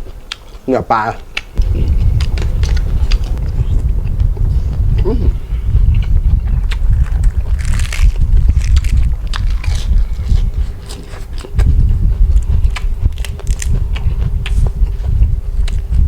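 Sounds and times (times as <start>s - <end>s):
person chewing and crunching food: 5.9s - 16.0s.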